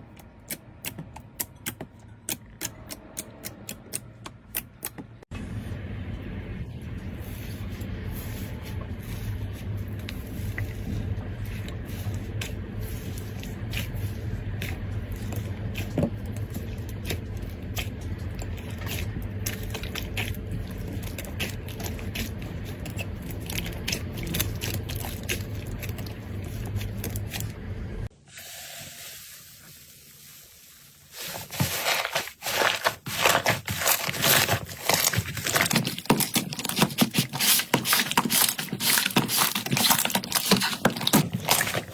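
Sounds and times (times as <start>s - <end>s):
low steady hum: 0.0s - 28.2s.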